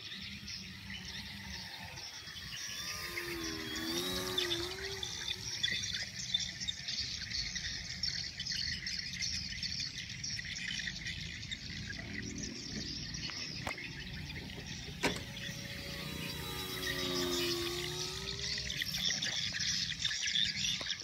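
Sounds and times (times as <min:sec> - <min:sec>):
birds chirping: 0:00.0 - 0:21.0
faint engine drone: 0:00.0 - 0:21.0
insects chirring: 0:00.0 - 0:21.0.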